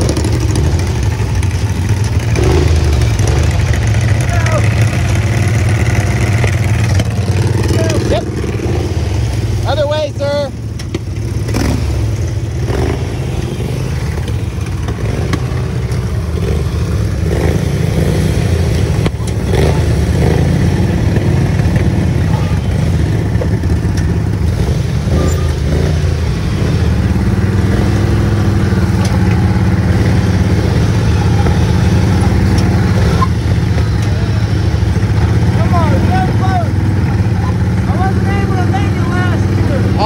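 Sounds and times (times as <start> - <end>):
small engines running under load: 0.0 - 40.0.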